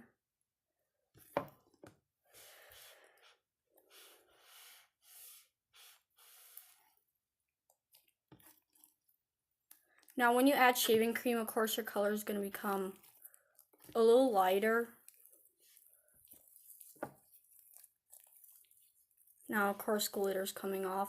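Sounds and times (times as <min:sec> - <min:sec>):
slime squishing: 0:07.6 - 0:20.8.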